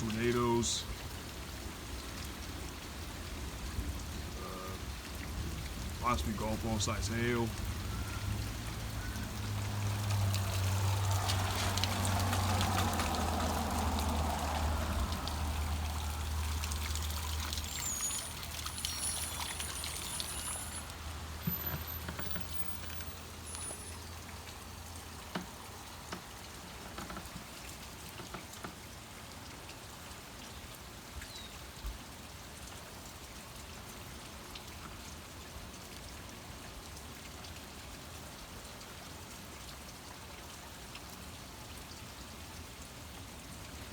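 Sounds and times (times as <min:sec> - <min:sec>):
heavy rain falling: 0:00.0 - 0:28.6
water pouring and trickling: 0:00.0 - 0:43.9
sharp drips: 0:05.7 - 0:27.0.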